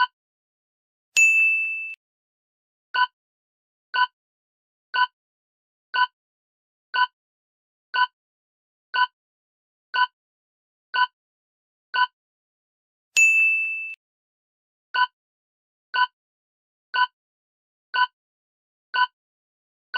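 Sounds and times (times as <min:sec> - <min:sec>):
clock-like timer ticks: 0:18.0 - 0:18.2, 0:19.0 - 0:19.2.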